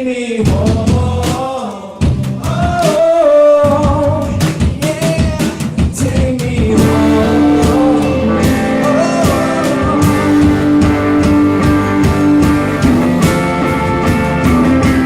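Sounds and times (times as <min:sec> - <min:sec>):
live rock band playing: 0:03.6 - 0:15.0.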